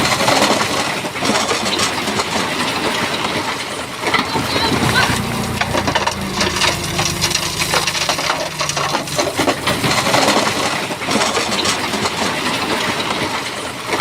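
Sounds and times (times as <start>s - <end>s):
bulldozer engine drone: 3.9s - 12.8s.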